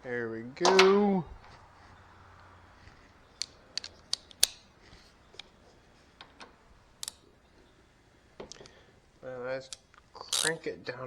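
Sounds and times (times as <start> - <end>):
hand tools clicking and tapping: 2.4 - 5.6.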